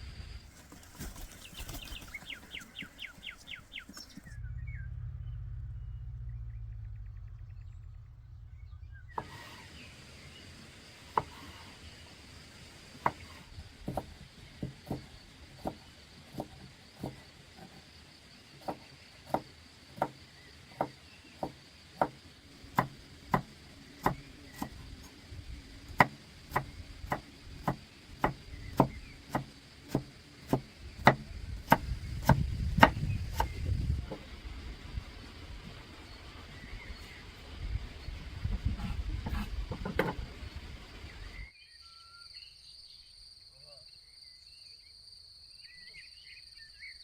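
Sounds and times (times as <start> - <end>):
low rumble: 3.6 - 10.5, 31.3 - 41.5
sharp chopping strikes: 22.8 - 24.8, 26.0 - 33.6.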